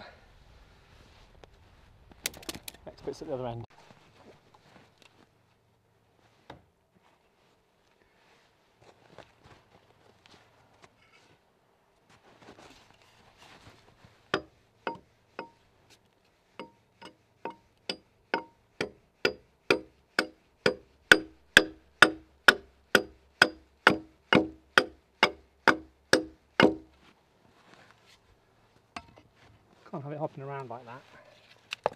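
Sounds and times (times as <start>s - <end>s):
axe chopping into log: 18.4s - 26.9s.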